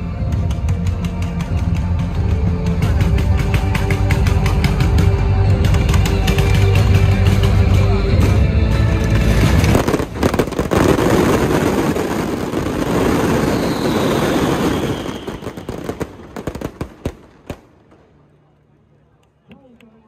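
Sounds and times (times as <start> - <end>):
firecrackers crackling and popping: 0.0 - 18.4.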